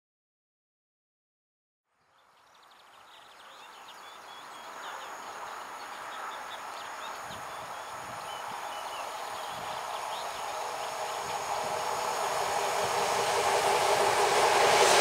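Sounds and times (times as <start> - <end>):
small birds chirping: 2.0 - 12.4
distant train approaching: 3.5 - 15.0.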